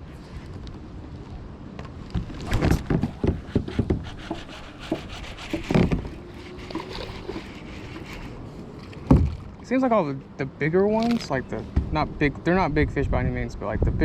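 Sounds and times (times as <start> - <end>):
water: 0.0 - 14.0
wind: 0.0 - 14.0
knocks against kayak hull: 2.2 - 6.2, 9.0 - 9.5.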